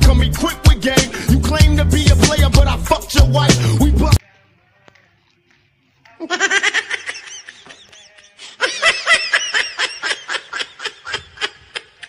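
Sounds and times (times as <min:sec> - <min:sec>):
person laughing: 0:06.2 - 0:12.0.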